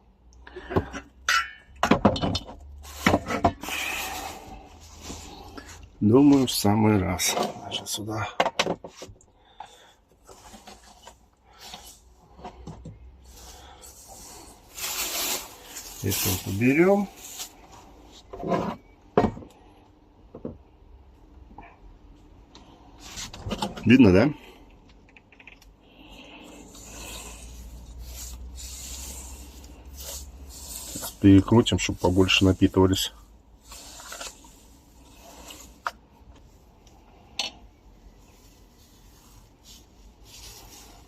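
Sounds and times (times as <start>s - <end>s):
scraping in pot of melted wax: 26.5s - 36.2s.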